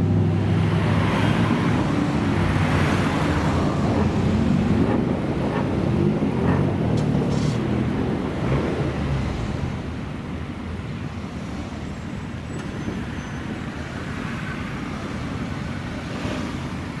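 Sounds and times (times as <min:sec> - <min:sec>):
car engine running loudly: 0:00.0 - 0:12.8
road and traffic noise: 0:00.0 - 0:17.0.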